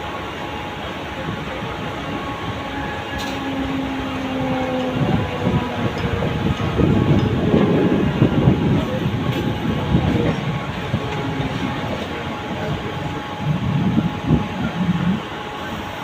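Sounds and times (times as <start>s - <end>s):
train wheels rumbling on rails: 0.0s - 16.0s
clatter over rail joints: 8.8s - 12.2s.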